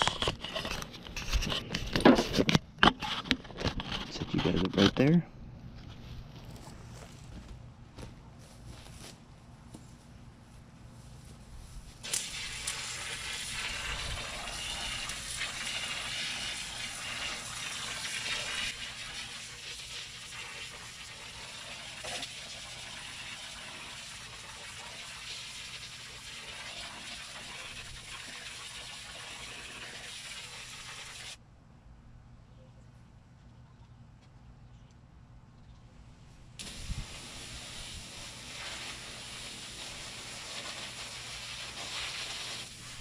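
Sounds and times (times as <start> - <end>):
hose spraying water jet: 12.0 - 31.4, 36.6 - 43.0.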